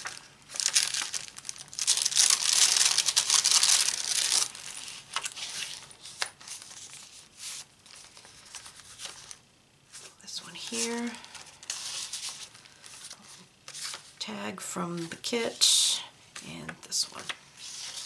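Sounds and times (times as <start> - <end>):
paper rustling and crinkling: 0.0 - 14.2, 17.2 - 18.0.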